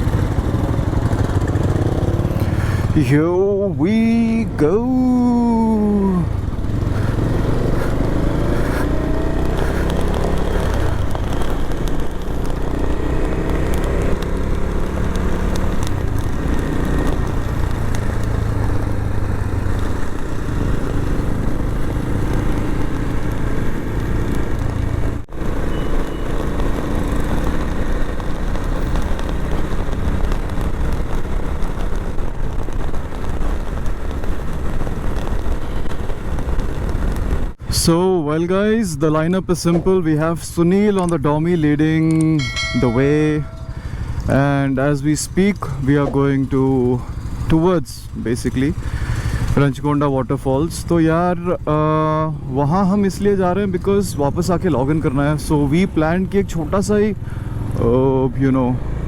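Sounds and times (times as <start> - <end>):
motorcycle engine accelerating: 0.0 - 37.6, 41.9 - 47.6, 57.2 - 59.0
road and wind noise: 0.0 - 59.0.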